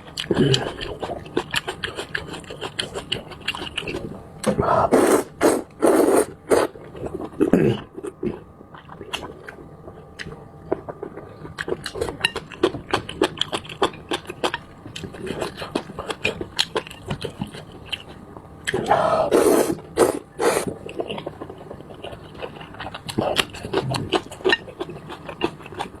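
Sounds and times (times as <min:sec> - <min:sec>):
wet chewing and smacking: 0:00.0 - 0:04.6, 0:06.6 - 0:19.0, 0:19.9 - 0:26.0
person slurping noodles: 0:04.7 - 0:06.7, 0:18.8 - 0:20.8.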